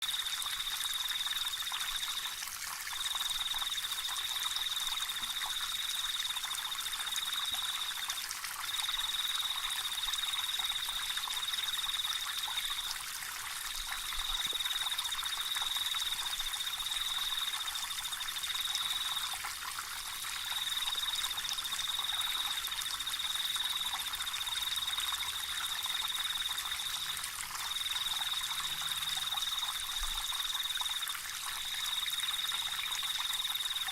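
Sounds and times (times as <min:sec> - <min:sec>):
water trickling: 0:00.0 - 0:33.9.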